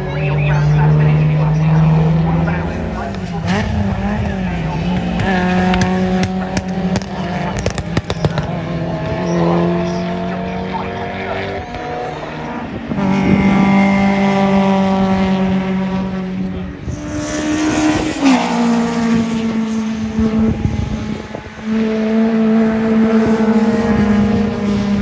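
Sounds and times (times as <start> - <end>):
rally car engines running hard: 0.0 - 25.0.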